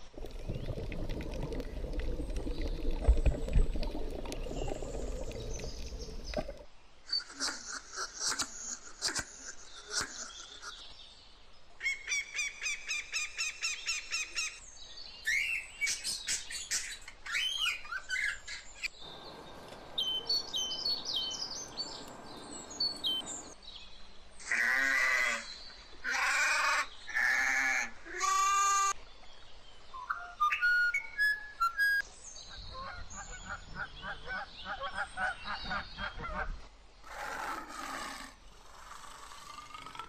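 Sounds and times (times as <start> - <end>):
loud bird calls: 15.3 - 23.6
bird trill: 19.0 - 23.6
bird chirps and whistles: 30.0 - 32.0.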